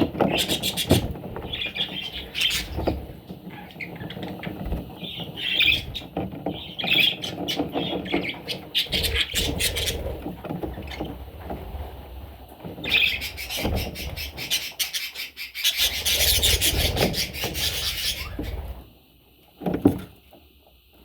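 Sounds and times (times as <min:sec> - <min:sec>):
parrots squawking and chirping: 0:00.2 - 0:11.2, 0:12.8 - 0:18.8.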